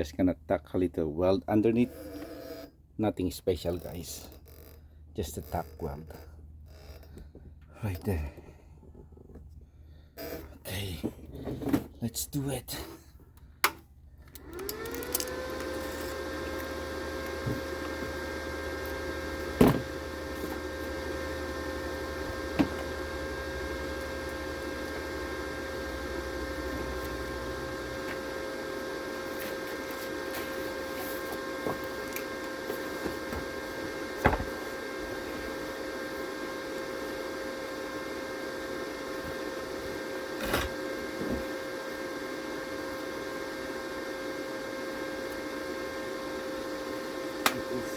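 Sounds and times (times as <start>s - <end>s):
small electric motor running: 1.8s - 2.8s, 14.4s - 38.0s.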